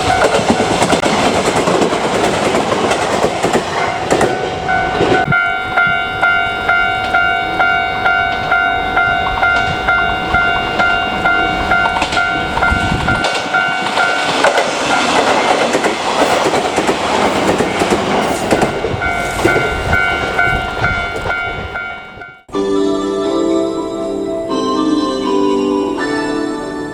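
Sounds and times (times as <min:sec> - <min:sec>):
train rumble and wheel clatter: 0:00.0 - 0:22.5
level crossing alarm ringing: 0:00.0 - 0:22.6
music: 0:22.5 - 0:26.9.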